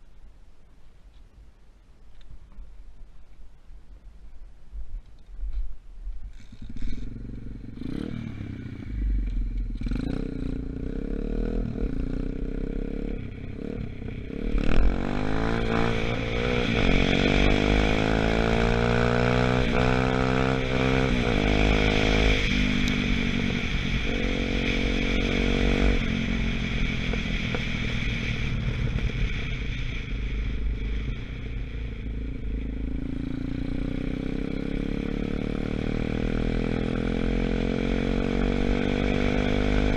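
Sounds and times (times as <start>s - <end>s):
dirt bike engine revving: 9.8s - 39.9s.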